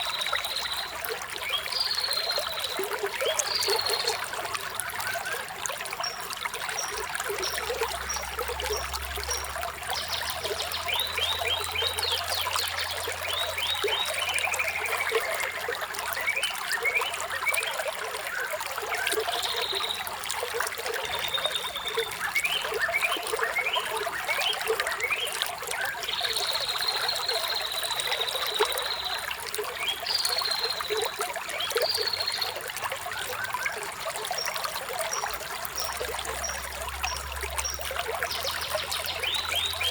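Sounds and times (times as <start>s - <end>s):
water trickling: 0.0s - 39.9s
birds singing: 33.2s - 39.9s.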